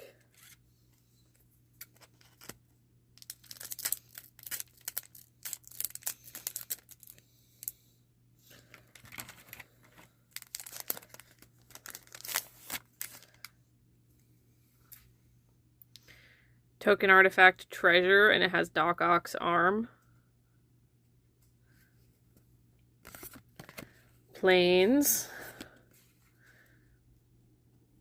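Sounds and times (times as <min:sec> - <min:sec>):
wrapper tearing and crinkling: 0:03.2 - 0:07.2, 0:08.8 - 0:13.5.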